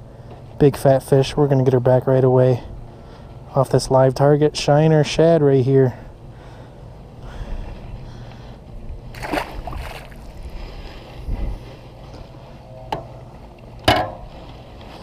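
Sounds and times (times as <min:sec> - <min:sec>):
wind rumbling on microphone: 0:07.2 - 0:12.6
water splashing: 0:09.1 - 0:10.5.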